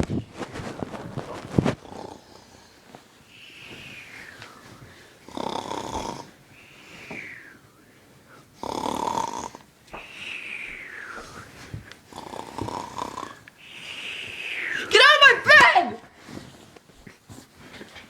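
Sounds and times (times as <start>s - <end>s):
person snoring: 1.8s - 2.8s, 5.2s - 7.6s, 8.6s - 11.5s, 12.1s - 14.9s.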